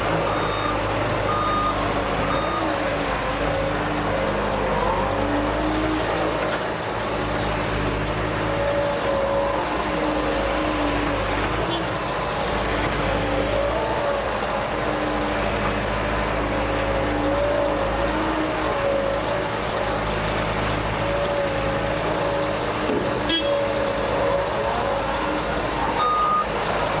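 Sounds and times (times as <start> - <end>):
excavator diesel engine whining: 0.0 - 27.0
reversing beep: 0.2 - 2.8, 26.0 - 26.5.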